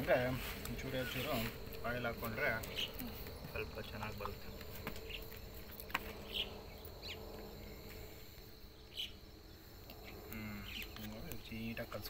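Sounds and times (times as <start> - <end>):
high insect drone: 0.0 - 12.0
short insect chirps: 0.1 - 12.0.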